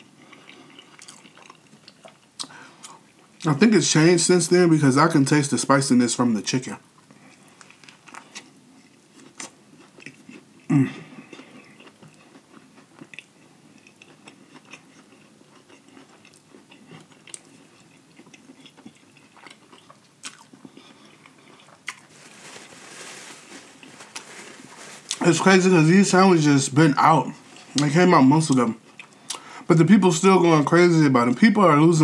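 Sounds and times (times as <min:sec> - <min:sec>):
biting and chewing: 0:11.2 - 0:25.4.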